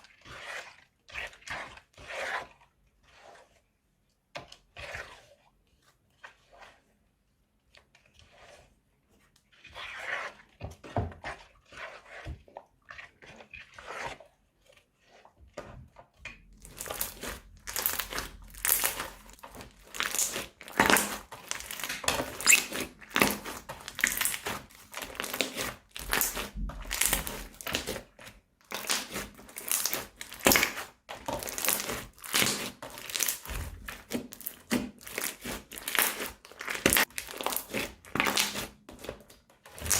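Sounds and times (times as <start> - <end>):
slime crackling: 16.6 - 27.9, 28.7 - 38.7.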